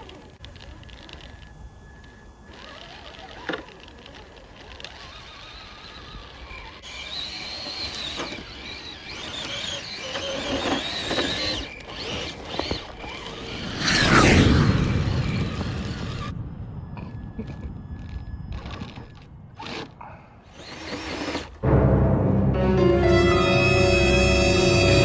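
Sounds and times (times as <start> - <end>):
rc crawler motor whine: 0.0 - 21.6, 23.6 - 25.0
tracks squeaking and creaking: 0.0 - 21.6.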